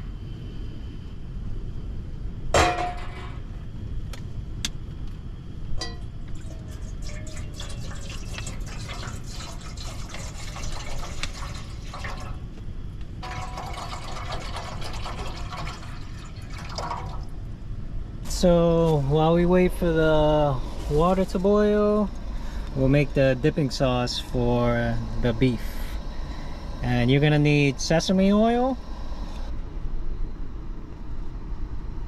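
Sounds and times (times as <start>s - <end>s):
water pouring into a pot: 5.8s - 12.4s, 13.2s - 17.4s.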